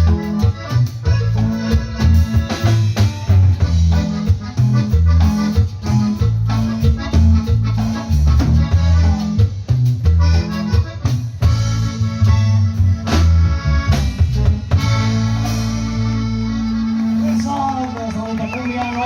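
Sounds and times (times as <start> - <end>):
stepping bass line: 0.0 - 17.8
accordion lead: 0.0 - 19.0
band playing live: 0.0 - 19.0.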